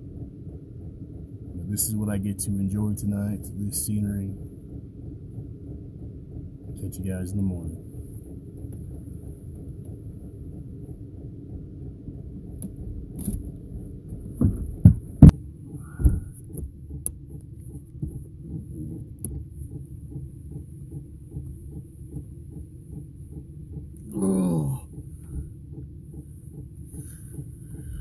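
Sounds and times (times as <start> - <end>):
air heater humming: 0.0 - 28.0
fuel pump ticking: 0.0 - 28.0
loud knocks: 14.3 - 15.4.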